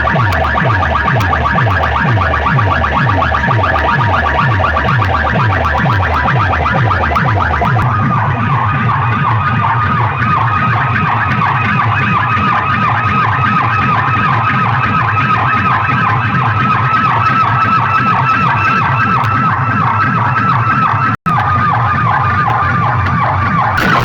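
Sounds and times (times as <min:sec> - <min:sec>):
siren-effect dance track: 0:00.0 - 0:10.1, 0:23.8 - 0:24.0.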